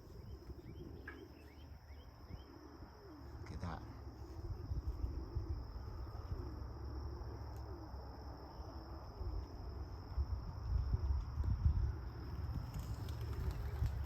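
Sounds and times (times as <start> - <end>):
pigeons cooing: 0.0 - 8.6, 12.0 - 14.0
wind buffeting microphone: 4.4 - 6.5, 10.0 - 14.0.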